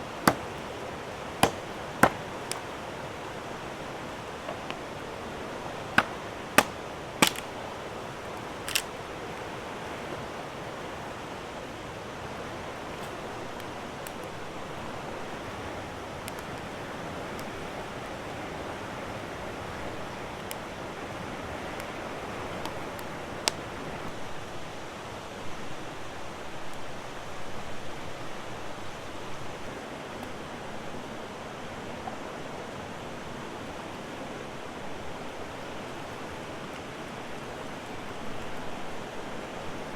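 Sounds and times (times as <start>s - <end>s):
river water flowing: 0.0s - 25.8s
sharp clicks: 6.0s - 7.5s, 8.7s - 8.9s.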